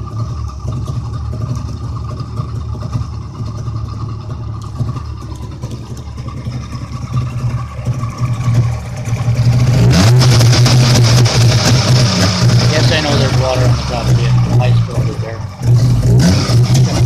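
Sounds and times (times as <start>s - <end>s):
two-stroke engine running: 0.0s - 17.0s.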